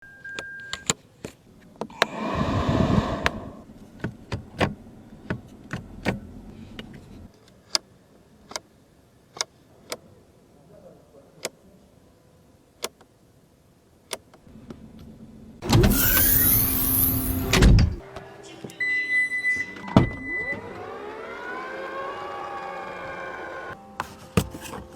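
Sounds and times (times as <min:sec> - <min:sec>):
whirring rush: 0:01.9 - 0:03.7, 0:15.7 - 0:18.0, 0:20.2 - 0:23.8
sharp clicks of car controls: 0:04.0 - 0:07.9, 0:12.8 - 0:13.1, 0:14.0 - 0:14.4
low electric motor hum: 0:14.6 - 0:18.0, 0:20.1 - 0:23.8.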